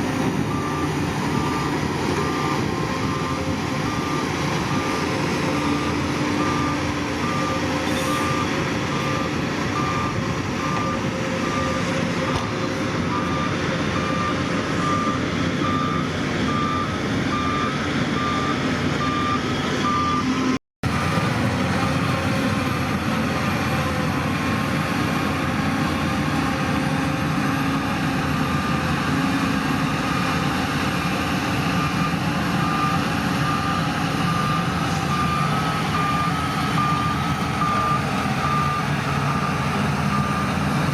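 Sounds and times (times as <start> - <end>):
diesel engine running: 0.0 - 40.9
reversing alarm beeping: 0.4 - 20.6, 27.2 - 40.9.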